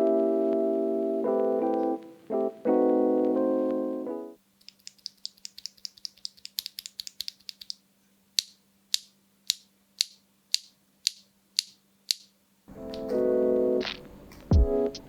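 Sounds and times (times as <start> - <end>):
mechanical keyboard clacking: 4.7 - 7.8.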